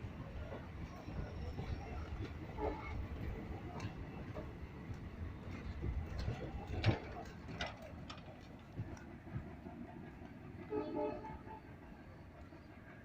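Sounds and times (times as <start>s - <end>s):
train horn: 2.6s - 3.0s, 10.6s - 11.8s.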